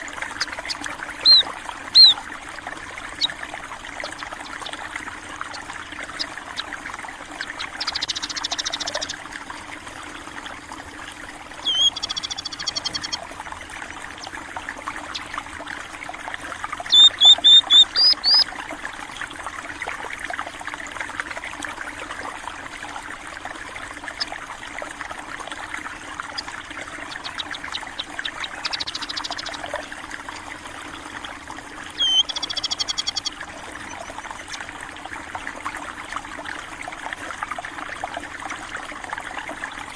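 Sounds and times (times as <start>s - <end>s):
water trickling: 0.0s - 39.9s
birds chirping rapidly: 0.3s - 2.2s, 3.1s - 3.4s, 5.4s - 6.7s, 7.3s - 9.2s, 11.6s - 13.3s, 16.8s - 18.4s, 26.3s - 29.6s, 31.9s - 34.6s.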